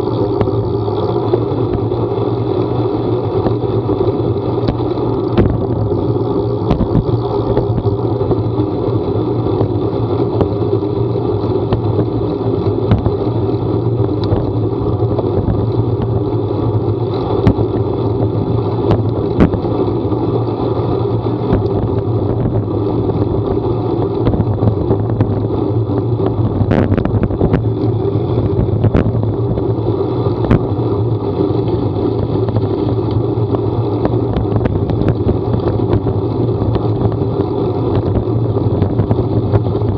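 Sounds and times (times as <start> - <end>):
road noise: 0.0 - 39.9
vehicle engine hum: 0.0 - 39.9
small clicks and knocks: 4.6 - 5.8, 6.5 - 8.0, 11.6 - 13.3, 14.1 - 16.2, 21.4 - 22.6.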